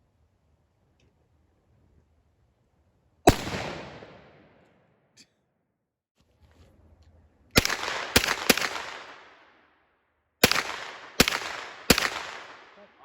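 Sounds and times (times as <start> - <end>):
gunshots echoing: 3.3 - 4.6, 7.6 - 9.7, 10.4 - 13.0.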